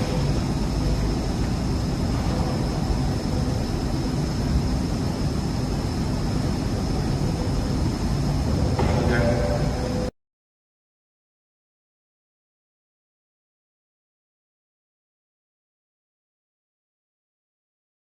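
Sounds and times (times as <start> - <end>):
electric forklift running: 0.0 - 10.1
high-pitched whine: 0.0 - 10.1.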